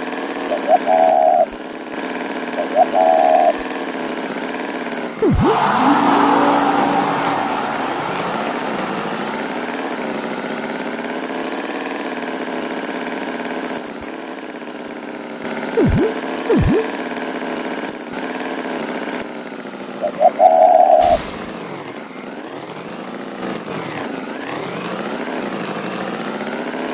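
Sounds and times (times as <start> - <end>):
swooping sounds: 5.2 - 6.1, 15.8 - 16.9, 21.0 - 21.8.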